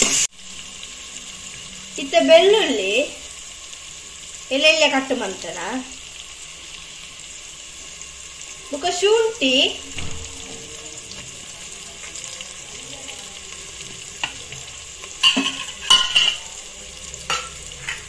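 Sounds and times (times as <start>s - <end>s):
onions frying in oil: 0.0s - 18.0s
utensil knocking and scraping pot: 13.8s - 16.5s.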